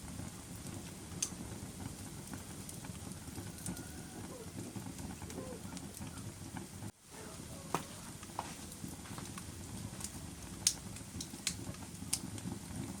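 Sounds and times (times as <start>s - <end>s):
fire crackles and pops: 0.0s - 13.0s
low rumble of flames: 0.0s - 13.0s.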